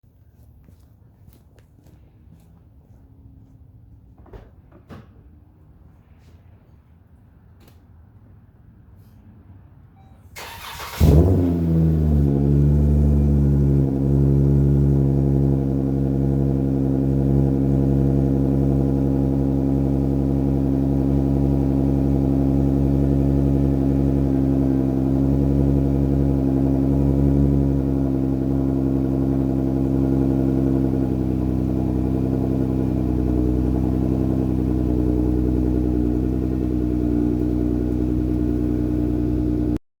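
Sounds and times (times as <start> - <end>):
car engine starting and idling: 10.0 - 39.8.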